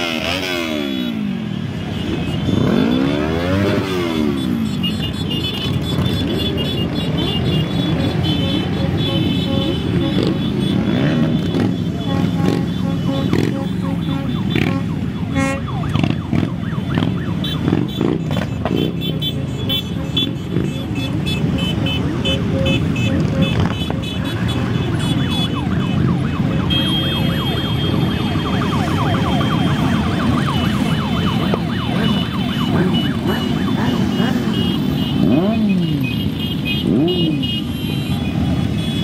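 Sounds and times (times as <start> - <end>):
motorcycles riding past revving: 0.0 - 4.9, 9.6 - 15.2.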